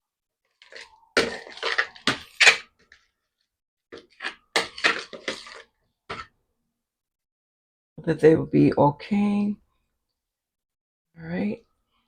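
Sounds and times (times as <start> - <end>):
spoon scraping a container: 0.6 - 2.6, 4.0 - 6.3.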